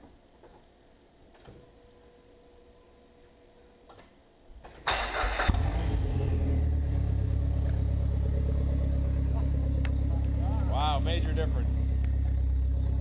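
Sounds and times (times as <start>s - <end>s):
car engine cranking and starting: 4.7s - 13.0s
loud engine idle: 5.6s - 13.0s.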